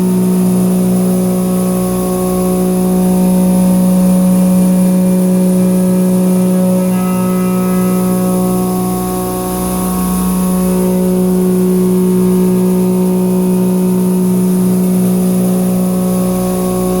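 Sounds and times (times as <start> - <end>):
milling cutter whine: 5.3 - 12.5.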